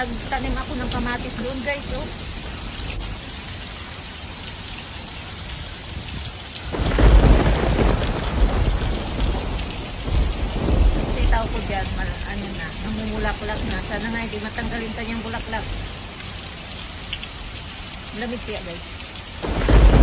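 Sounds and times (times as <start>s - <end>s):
heavy rain: 0.0s - 20.0s
deep rumble of thunder: 6.6s - 15.9s, 19.4s - 20.0s.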